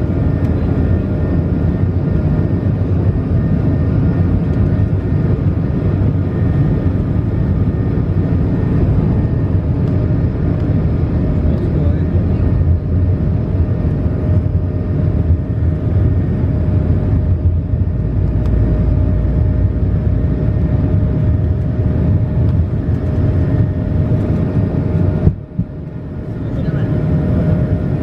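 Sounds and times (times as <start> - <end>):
airplane cabin engine rumble: 0.0 - 28.0
constant hum: 0.0 - 28.0.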